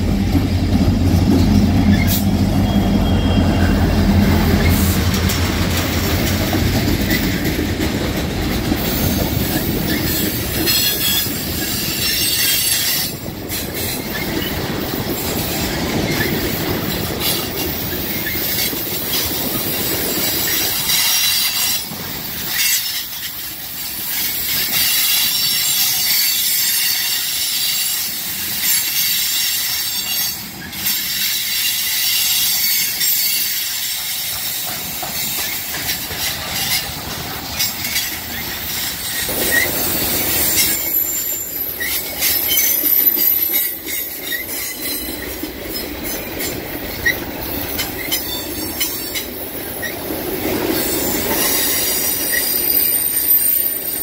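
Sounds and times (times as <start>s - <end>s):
diesel locomotive drone: 0.0s - 54.0s
train low rumble: 0.0s - 54.0s
train wheels squealing on rails: 0.0s - 54.0s.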